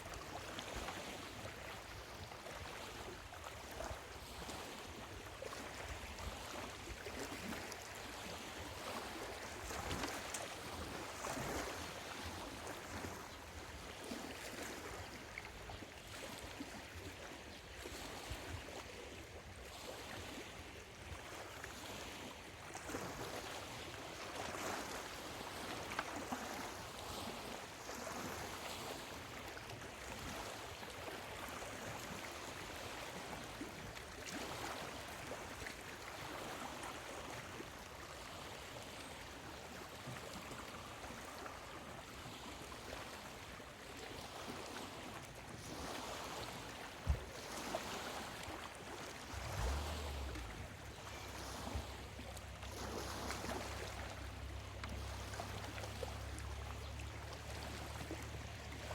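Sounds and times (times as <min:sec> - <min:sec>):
small waves lapping on shore: 0:00.0 - 0:58.9.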